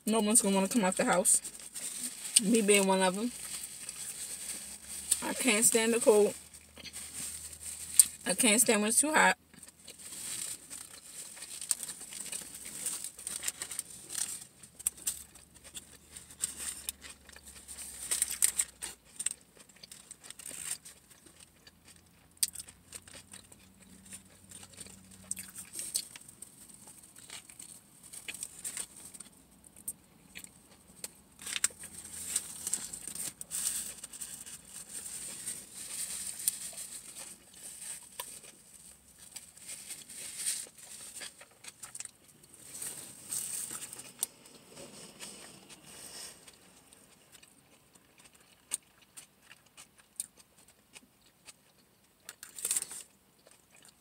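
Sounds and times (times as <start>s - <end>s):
paper wrapper crinkling: 1.0s - 8.2s, 9.6s - 21.4s, 30.9s - 47.4s
chewing and smacking: 9.5s - 45.8s, 46.4s - 54.0s.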